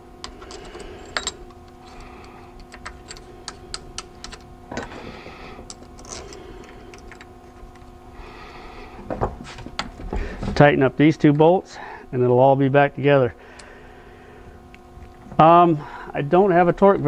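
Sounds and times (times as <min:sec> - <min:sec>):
steady low hum: 0:00.0 - 0:17.0
small metal parts clicking: 0:00.2 - 0:04.9.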